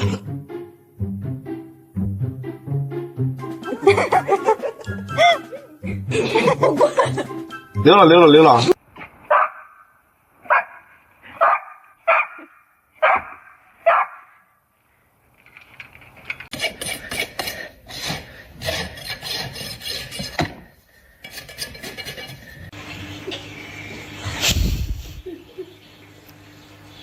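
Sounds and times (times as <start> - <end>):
dog barking: 9.3 - 9.8, 10.4 - 14.4
scraping and rubbing: 15.4 - 22.7.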